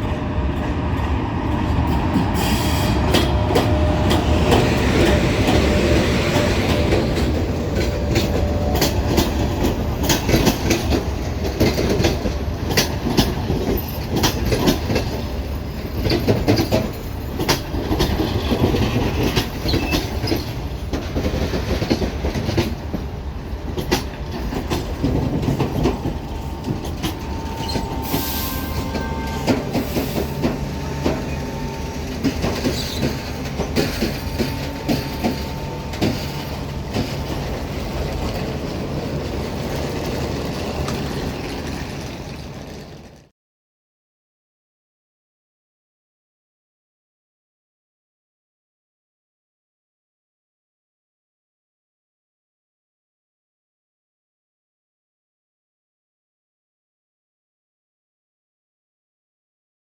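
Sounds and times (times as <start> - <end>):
train wheels clicking over rail joints: 0.0 - 43.3
brake squeals: 26.3 - 32.0, 32.6 - 33.3.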